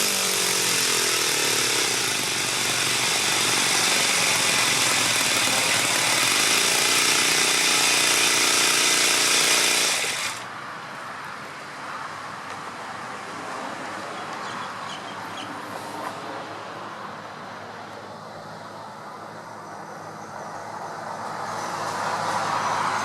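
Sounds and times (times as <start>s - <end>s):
model engine running: 0.0s - 10.4s.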